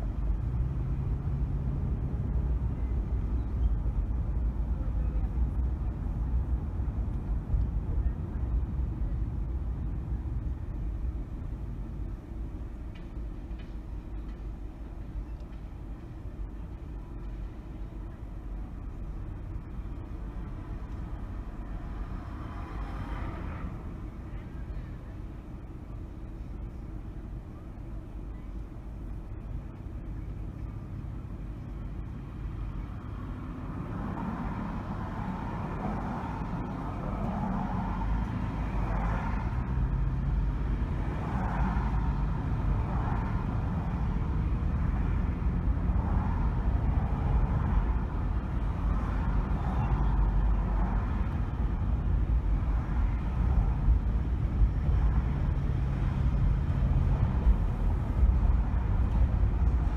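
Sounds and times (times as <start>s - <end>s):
tyre road noise: 0.0s - 59.9s
car engine: 28.9s - 59.9s.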